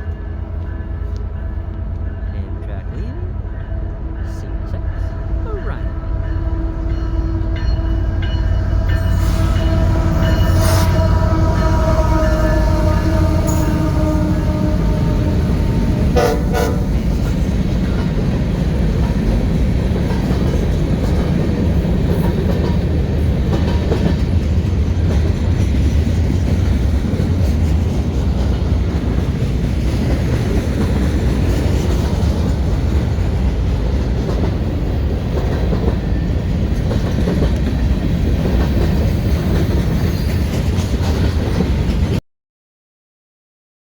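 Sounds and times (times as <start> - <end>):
train horn blast: 0.0 - 17.2
train wheels rumbling on rail: 0.0 - 42.2.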